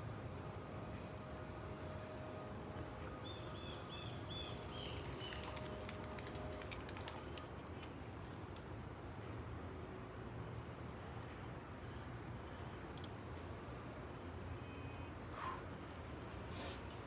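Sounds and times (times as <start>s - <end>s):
low background hum: 0.0s - 17.0s
bird singing: 3.2s - 5.7s
faint clicks: 6.6s - 9.4s, 12.9s - 13.5s.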